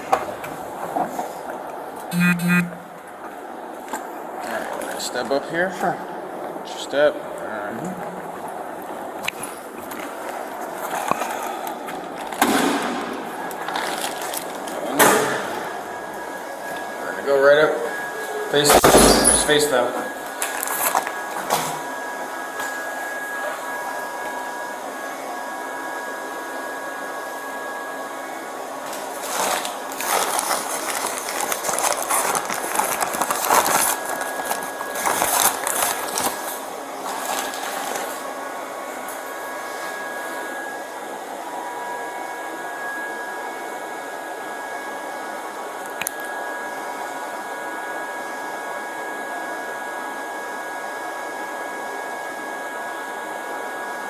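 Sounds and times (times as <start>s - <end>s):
fan whirring with faint whine: 0.0s - 54.0s
irregular rustling: 29.3s - 38.1s.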